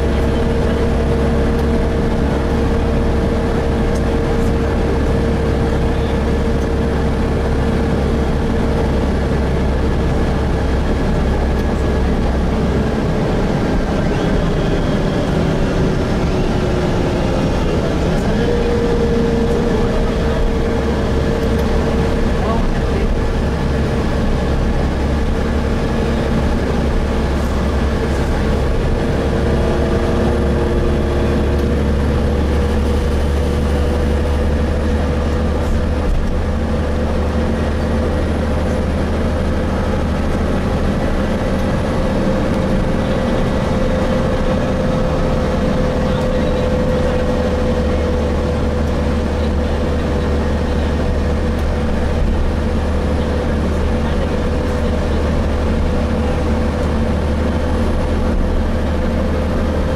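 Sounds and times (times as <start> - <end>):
bus engine and road rumble: 0.0 - 59.9
transmission whine: 0.0 - 59.9.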